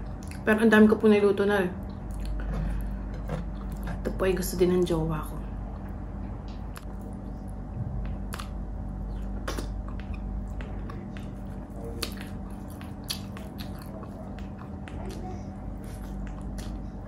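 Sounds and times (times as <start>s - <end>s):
steady low hum: 0.0s - 17.0s
chewing and lip smacks: 1.8s - 4.0s, 6.5s - 17.0s.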